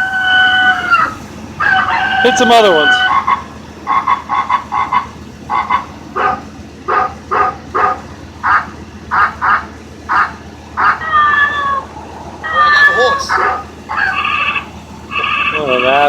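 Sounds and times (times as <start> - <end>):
frog croaking: 12.4 - 16.0.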